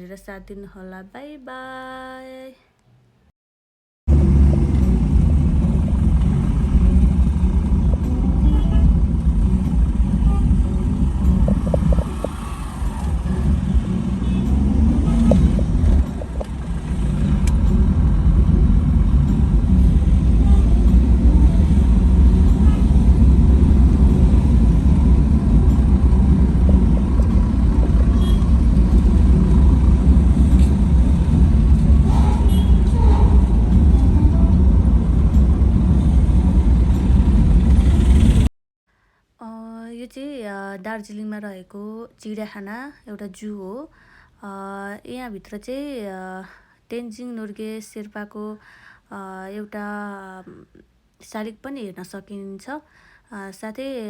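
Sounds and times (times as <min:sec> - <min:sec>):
moving vehicle rumble: 0:04.1 - 0:38.5.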